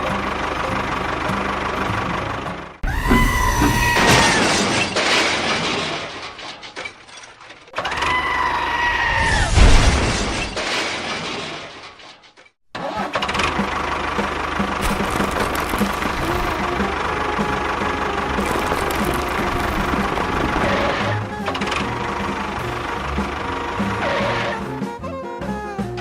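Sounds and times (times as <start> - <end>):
small engine whining: 12.8 - 26.0.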